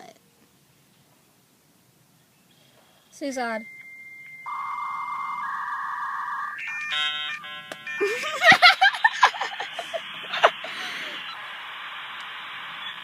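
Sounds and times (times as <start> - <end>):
electronic beeps and tones: 3.7 - 8.4
rising electronic warble: 4.1 - 11.4
loud sharp crackles: 9.8 - 13.0.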